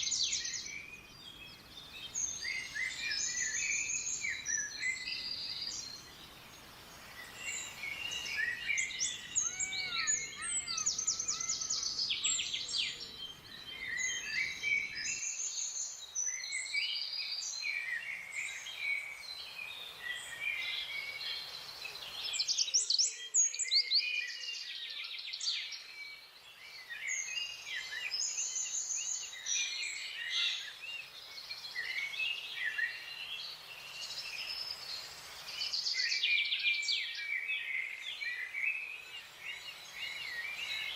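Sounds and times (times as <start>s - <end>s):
low background hiss: 0.0s - 17.6s
birds chirping and trilling: 0.0s - 40.9s.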